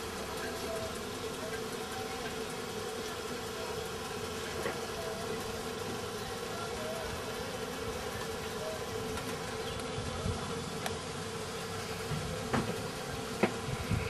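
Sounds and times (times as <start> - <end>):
buzzing engine drone: 0.0 - 14.0.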